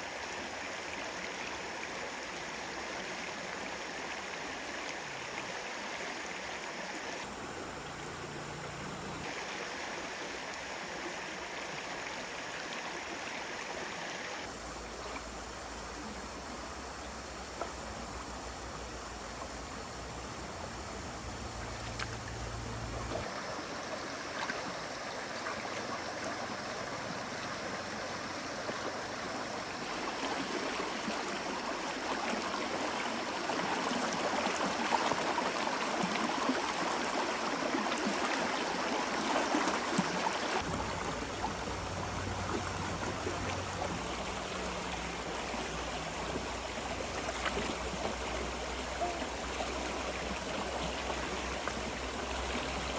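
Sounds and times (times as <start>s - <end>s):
forest stream rushing: 0.0s - 52.9s.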